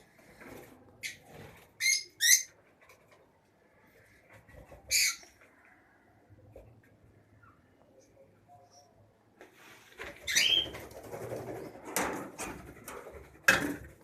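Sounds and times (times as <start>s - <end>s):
lovebirds shrieking: 4.9s - 5.3s.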